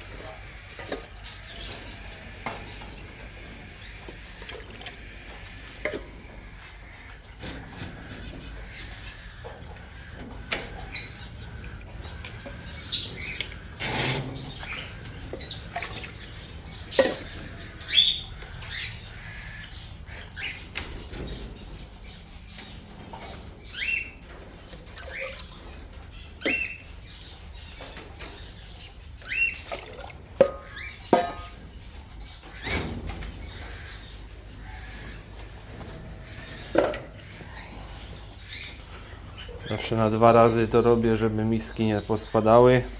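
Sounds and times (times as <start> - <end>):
parrots chirping: 0.0 - 42.9.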